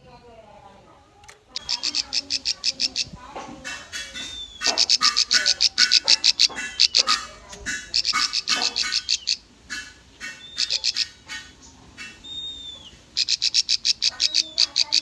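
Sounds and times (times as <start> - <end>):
bird singing rapid sharp notes: 1.6 - 15.0.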